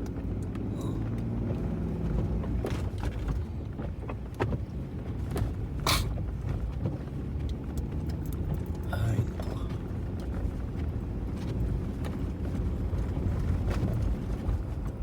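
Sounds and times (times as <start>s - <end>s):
vehicle engine and tyre rumble: 0.0s - 15.0s.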